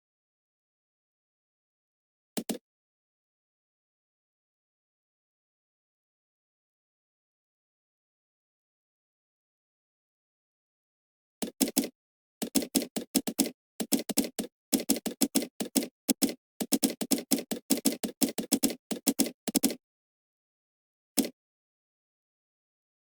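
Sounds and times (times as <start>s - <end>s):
typing on computer keyboard: 11.4s - 19.8s.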